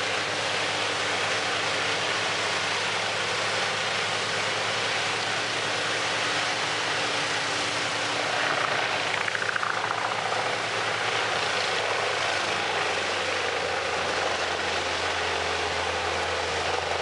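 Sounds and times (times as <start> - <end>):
wood chipper engine running: 0.0 - 17.0
falling whine: 7.0 - 14.0.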